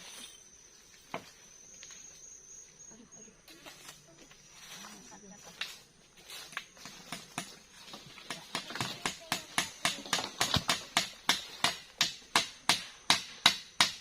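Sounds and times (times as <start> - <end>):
hammer hitting nail: 8.8 - 14.0.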